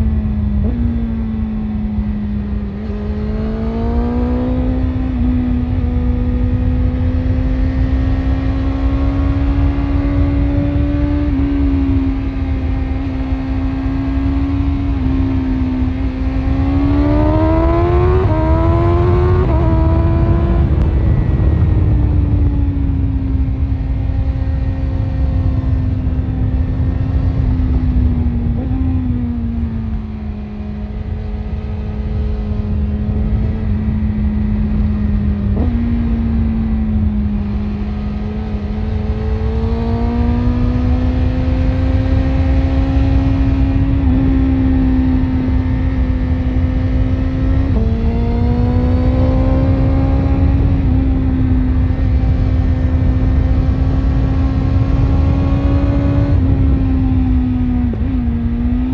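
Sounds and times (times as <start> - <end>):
motorcycle engine accelerating: 0.0 - 58.9
low rumble: 17.1 - 38.8.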